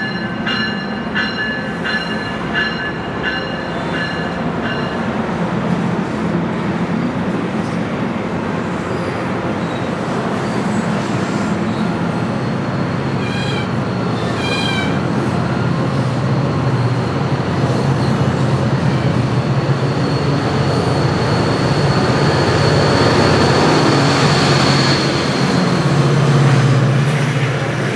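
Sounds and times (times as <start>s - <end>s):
diesel locomotive drone: 0.0s - 27.9s
train wheels rumbling on rail: 0.0s - 27.9s
short high squeals: 13.2s - 15.0s.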